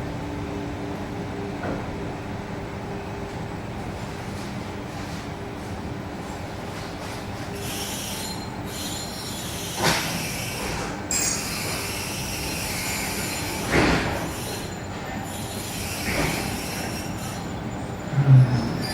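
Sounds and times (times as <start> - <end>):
train wheels squealing on rails: 6.8 - 18.9.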